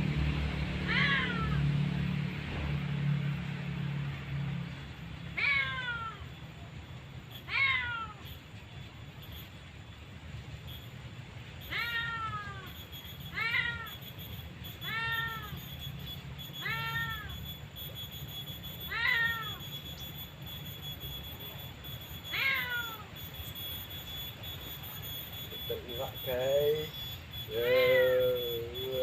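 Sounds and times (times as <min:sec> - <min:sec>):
cat meowing: 0:00.9 - 0:01.7, 0:05.4 - 0:06.3, 0:07.4 - 0:08.3, 0:11.6 - 0:14.0, 0:14.8 - 0:15.6, 0:16.6 - 0:17.4, 0:18.8 - 0:19.7, 0:22.2 - 0:23.1.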